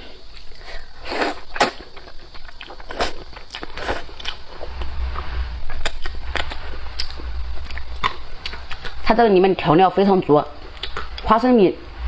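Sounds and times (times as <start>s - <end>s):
person chewing noodles: 0.3s - 4.6s.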